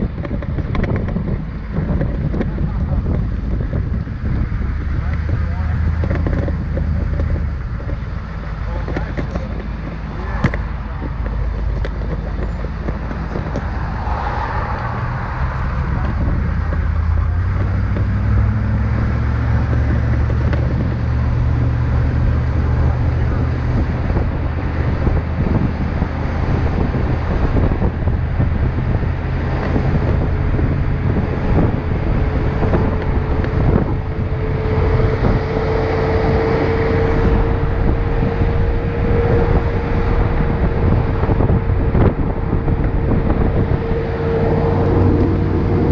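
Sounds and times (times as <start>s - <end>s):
car engine and road rumble: 0.0s - 45.9s.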